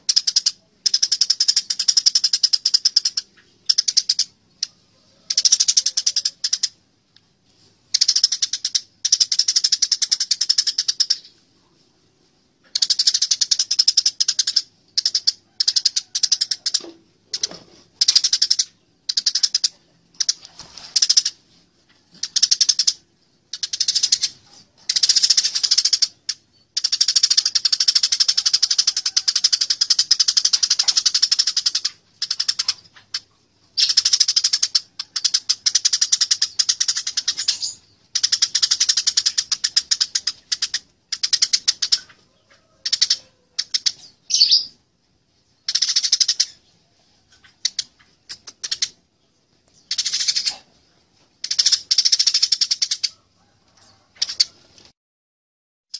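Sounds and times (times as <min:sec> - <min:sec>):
sparrows chattering chirps: 0:33.7 - 0:44.8, 0:45.6 - 0:50.7.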